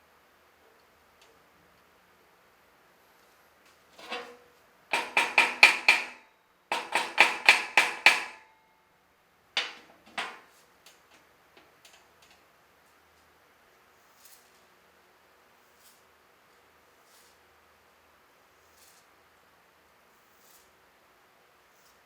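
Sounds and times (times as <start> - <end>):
hammer striking metal: 4.9 - 8.5.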